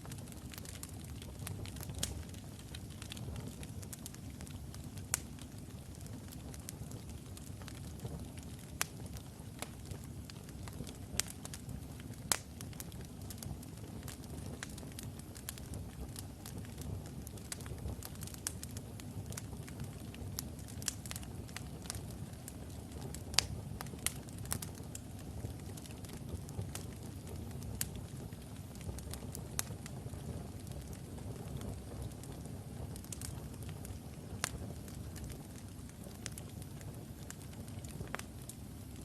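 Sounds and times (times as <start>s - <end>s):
fire rumbling: 0.0s - 39.0s
wood crackling and popping: 0.0s - 39.0s.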